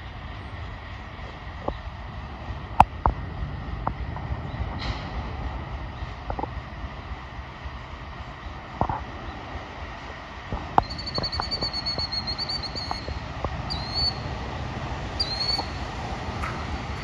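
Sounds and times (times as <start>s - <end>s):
diesel locomotives rumbling: 0.0s - 17.0s
bird calls: 10.8s - 14.3s, 15.2s - 15.9s
songbird trilling: 10.8s - 14.3s, 15.2s - 15.8s.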